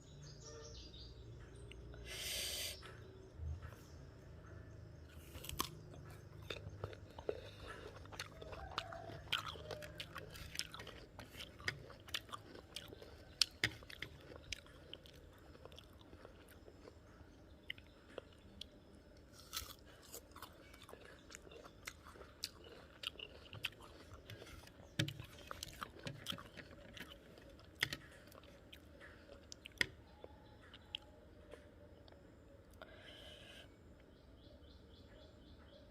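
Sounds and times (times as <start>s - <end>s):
fruit being bitten and chewed: 5.1s - 17.0s, 17.7s - 31.1s.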